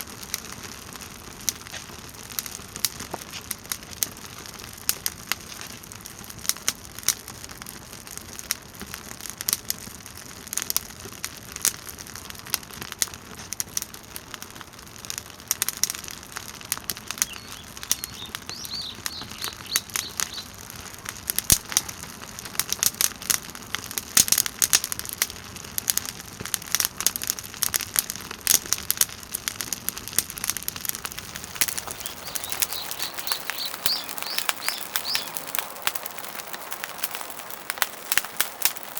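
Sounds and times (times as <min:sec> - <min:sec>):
wood fire crackling: 0:00.0 - 0:38.9
bird chirping: 0:17.0 - 0:20.6, 0:31.1 - 0:38.9.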